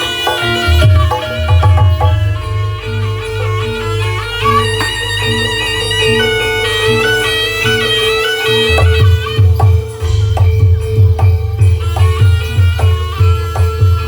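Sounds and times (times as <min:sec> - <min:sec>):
heavy drum beat: 0:00.0 - 0:03.6, 0:08.6 - 0:14.0
drone note: 0:00.0 - 0:09.8
wavering wind instrument melody: 0:00.0 - 0:14.0.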